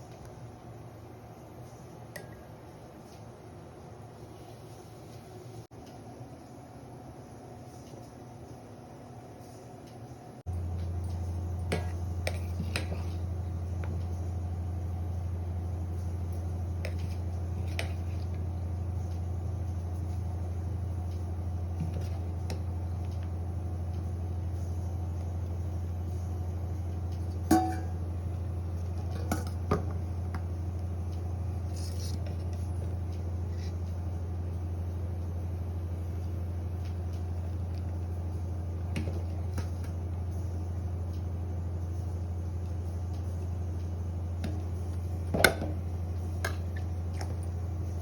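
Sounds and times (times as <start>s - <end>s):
steady low hum: 0.0s - 48.0s
utensils clinking against pots: 27.5s - 28.0s.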